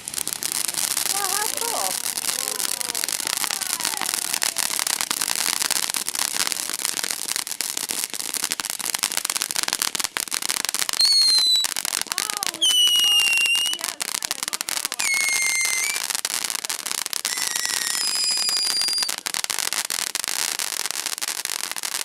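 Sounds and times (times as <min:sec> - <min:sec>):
fireworks crackling: 0:00.0 - 0:22.0
firework whistle: 0:10.9 - 0:11.8, 0:12.5 - 0:13.8, 0:15.0 - 0:16.1, 0:17.2 - 0:19.2.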